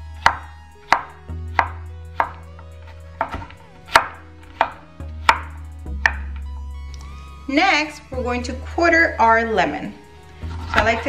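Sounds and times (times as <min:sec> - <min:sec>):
knife chopping on wooden board: 0:00.2 - 0:02.4, 0:03.2 - 0:06.3.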